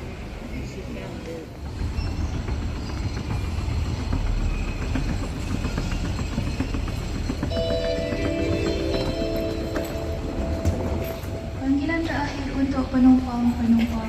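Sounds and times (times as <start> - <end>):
public-address chime: 7.5 - 13.8.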